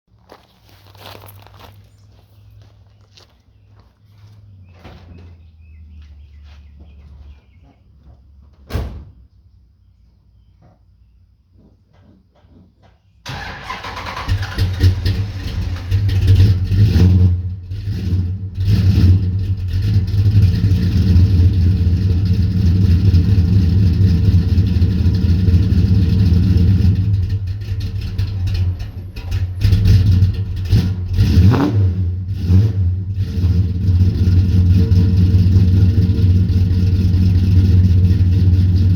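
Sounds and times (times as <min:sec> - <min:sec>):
car engine running loud and uneven: 0:13.3 - 0:38.9.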